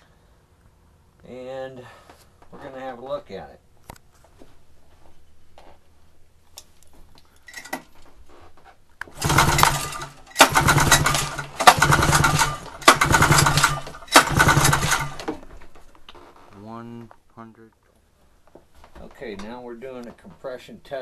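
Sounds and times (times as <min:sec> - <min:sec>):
snowmobile engine cranking: 0:09.1 - 0:15.4.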